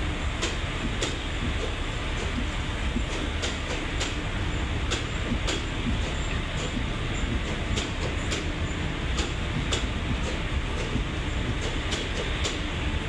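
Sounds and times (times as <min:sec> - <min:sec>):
sharp clicks of train wheels: 0:00.0 - 0:13.0
train rumbling on track: 0:00.0 - 0:13.0.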